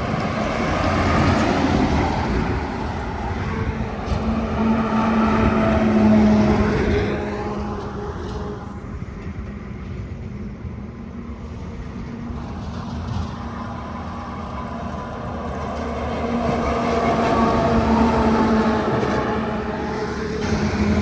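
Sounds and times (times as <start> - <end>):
diesel trucks passing: 0.0 - 21.0.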